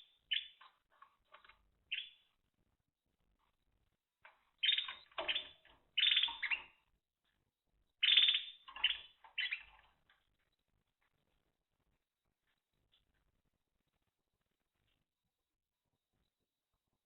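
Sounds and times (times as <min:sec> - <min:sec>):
canary singing trills: 0:00.0 - 0:02.4, 0:04.4 - 0:06.9, 0:07.9 - 0:10.6.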